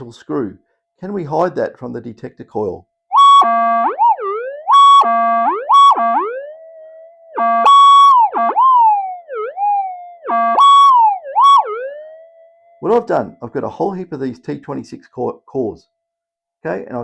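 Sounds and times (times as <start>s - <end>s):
metal detector warbling tones: 3.1s - 14.6s.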